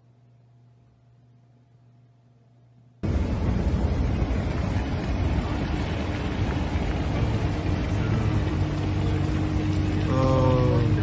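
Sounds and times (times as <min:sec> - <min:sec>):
faint steady hum: 0:00.0 - 0:11.0
vehicle engine and road rumble: 0:03.0 - 0:11.0.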